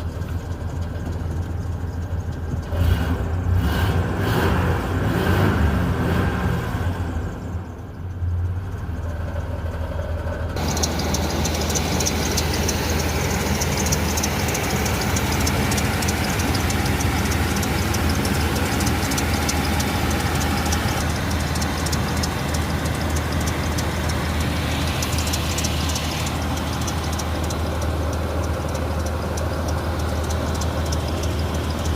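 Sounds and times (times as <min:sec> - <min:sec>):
car engine idling: 0:00.0 - 0:05.1, 0:06.9 - 0:31.9
fast light ticking: 0:10.6 - 0:31.9.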